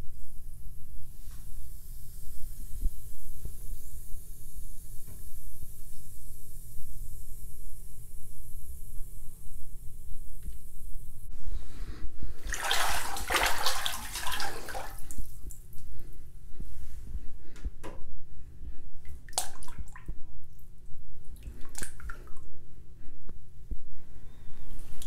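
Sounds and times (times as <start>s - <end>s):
water splashing in a bathtub: 12.4s - 15.8s, 19.0s - 20.7s, 21.4s - 22.5s
water dripping: 12.5s - 15.9s, 19.1s - 20.7s, 21.4s - 22.4s.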